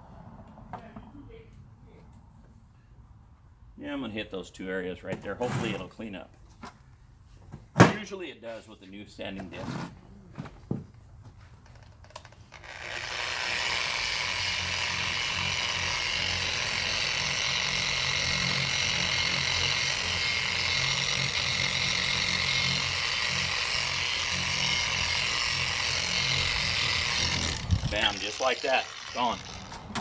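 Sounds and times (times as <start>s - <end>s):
electric sander sanding plastic: 12.0s - 30.0s.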